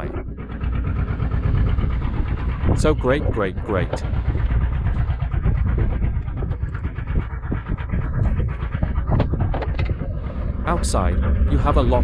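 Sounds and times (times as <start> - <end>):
boat motor rumbling: 0.0 - 12.0
sharp knocks on boat: 9.1 - 10.0.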